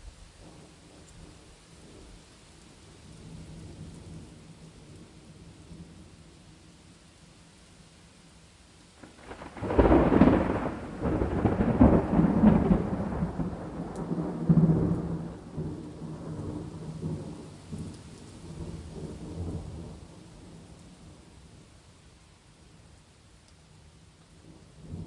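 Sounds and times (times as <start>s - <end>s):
faint steady rain: 0.0s - 25.0s
thunder rumbling: 9.0s - 21.6s.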